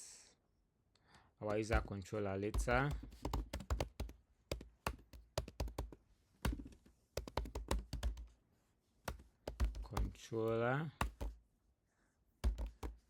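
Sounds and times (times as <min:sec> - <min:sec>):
keyboard typing: 0:02.5 - 0:08.3, 0:09.1 - 0:10.2, 0:11.0 - 0:11.4, 0:12.4 - 0:13.0.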